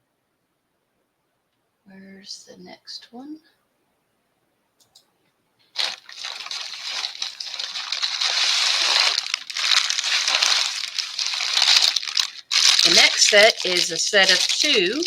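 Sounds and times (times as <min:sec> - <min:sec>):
plastic packaging crinkling: 0:05.7 - 0:15.0.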